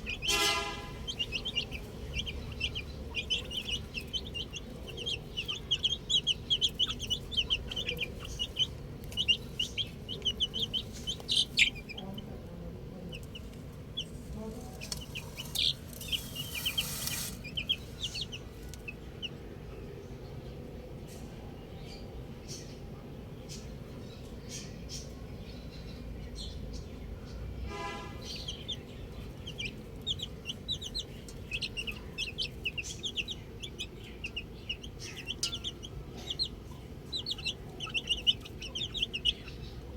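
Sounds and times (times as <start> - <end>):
baby chicks peeping: 0.0 - 39.9
rustling hiss: 14.0 - 18.8.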